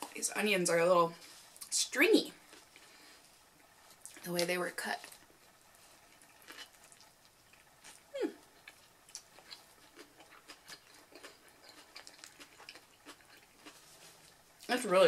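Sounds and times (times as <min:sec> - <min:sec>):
chewing mouth clicks and smacks: 0:08.6 - 0:13.8.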